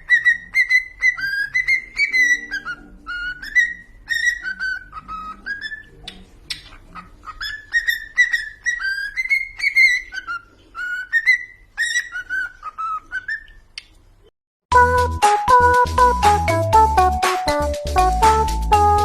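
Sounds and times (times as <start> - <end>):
cockatiel whistling a tune: 0.0 - 13.6.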